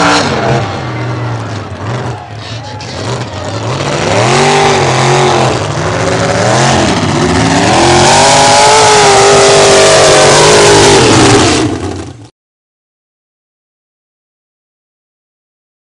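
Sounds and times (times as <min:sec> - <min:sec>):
truck engine revving: 0:00.0 - 0:12.3.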